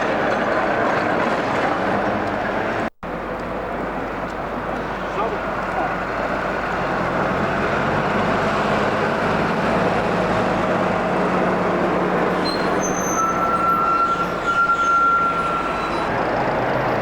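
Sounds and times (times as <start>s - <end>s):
heavy vehicle engine running: 0.0s - 17.0s
high steady squeal: 12.3s - 16.1s.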